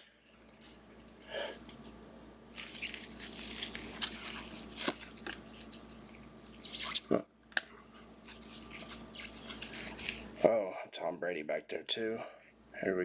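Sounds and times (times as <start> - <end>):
cards rustling: 2.5 - 7.0, 8.2 - 10.4.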